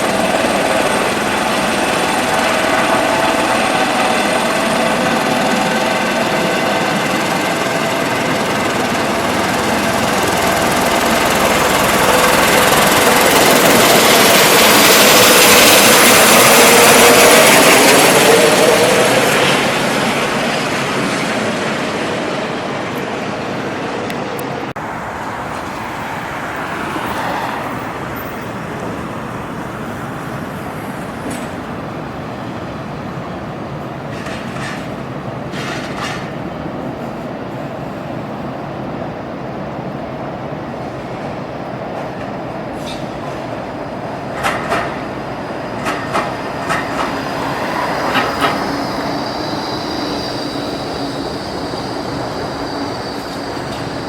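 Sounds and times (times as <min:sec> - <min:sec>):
wheels knocking: 0:00.0 - 0:31.8, 0:42.0 - 0:54.0
train rumbling on rails: 0:00.0 - 0:54.0
steady high-pitched tone: 0:46.6 - 0:54.0.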